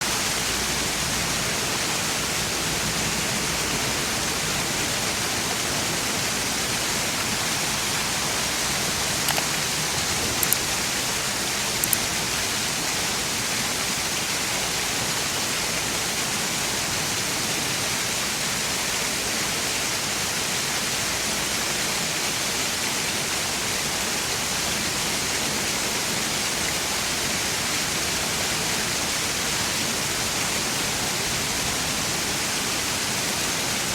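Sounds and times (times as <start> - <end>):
fountain water splashing: 0.0 - 33.9
brief ticks: 11.8 - 12.1.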